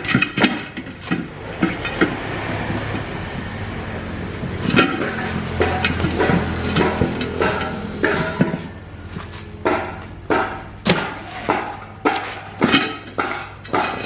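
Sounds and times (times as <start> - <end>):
hammer knocking on metal: 9.6 - 14.0.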